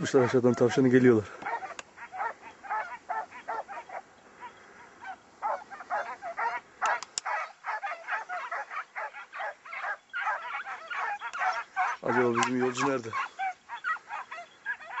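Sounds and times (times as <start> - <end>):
hounds baying and yelping: 0.0 - 15.0.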